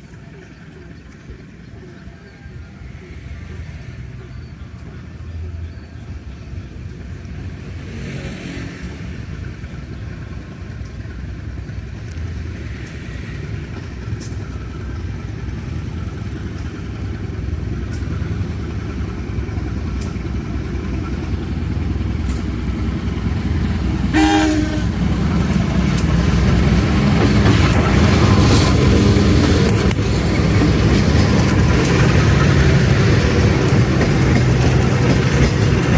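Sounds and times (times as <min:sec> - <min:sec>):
train rumbling: 0:00.0 - 0:35.9
train horn blast: 0:24.0 - 0:25.1.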